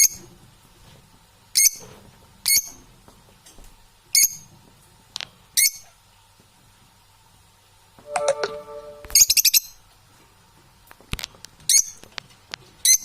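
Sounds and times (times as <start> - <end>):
shrill chirps: 8.1 - 9.7.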